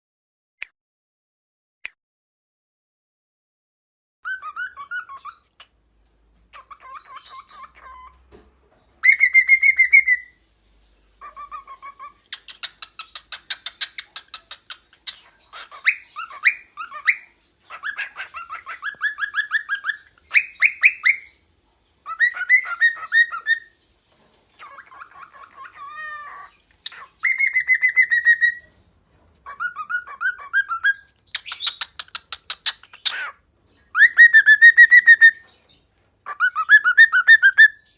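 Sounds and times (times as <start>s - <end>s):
cockatiel whistling: 4.2s - 5.5s, 9.0s - 10.4s, 11.2s - 21.3s, 22.1s - 23.7s, 24.6s - 28.7s, 29.4s - 33.3s, 33.9s - 35.5s, 36.3s - 37.9s.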